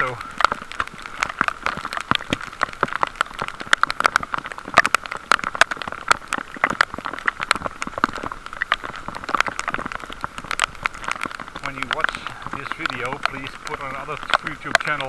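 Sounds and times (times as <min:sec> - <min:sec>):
heavy rain: 0:00.0 - 0:15.0
raindrops ticking near microphone: 0:00.0 - 0:15.0.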